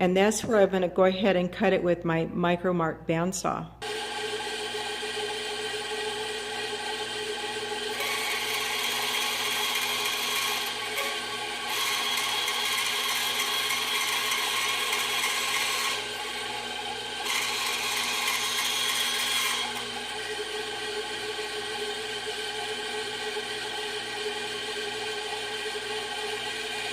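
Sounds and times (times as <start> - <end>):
band saw running: 3.8 - 26.9
saw blade rasping through metal: 8.0 - 16.1.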